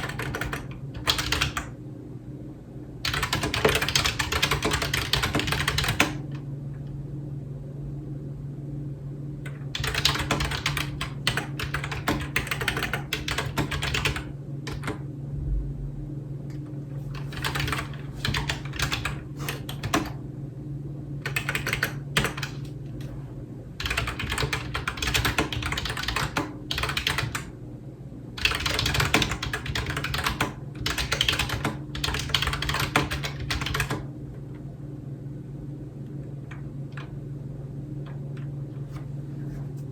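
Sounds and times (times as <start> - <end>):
computer keyboard typing: 0.0 - 1.7, 3.0 - 6.2, 9.5 - 15.0, 17.1 - 20.2, 21.2 - 22.7, 23.8 - 27.5, 28.4 - 34.1
steady low hum: 0.0 - 39.9.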